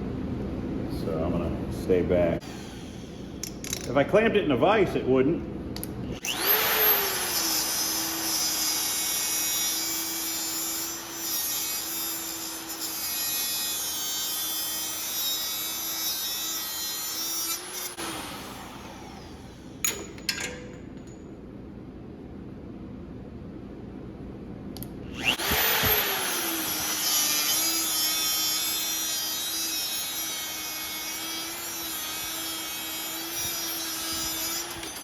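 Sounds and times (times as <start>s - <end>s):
power tool cutting metal: 6.2s - 19.8s, 25.1s - 35.0s.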